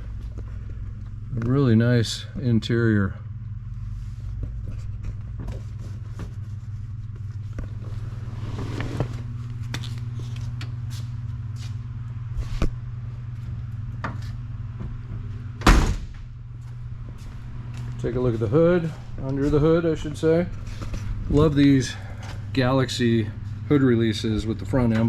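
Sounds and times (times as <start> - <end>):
loud thump: 15.6 - 16.2.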